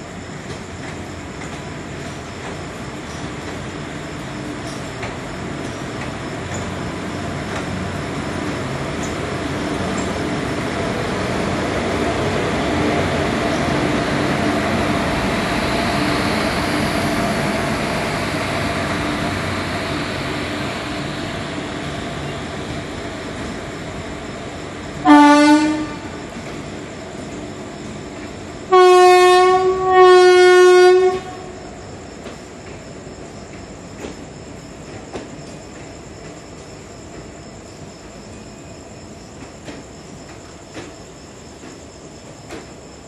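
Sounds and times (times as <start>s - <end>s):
train passing: 0.0s - 43.0s
train horn blast: 25.0s - 26.2s, 28.7s - 31.6s.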